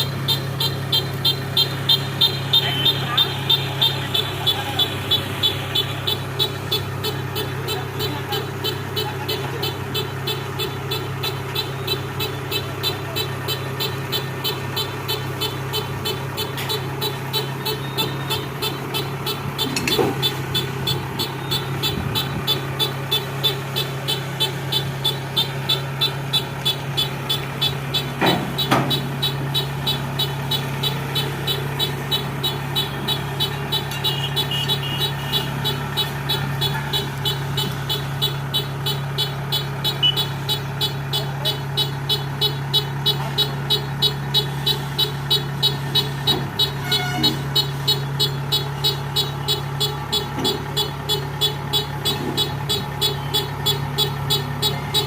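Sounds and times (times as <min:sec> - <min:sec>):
harvester engine hum: 0:00.0 - 0:55.0.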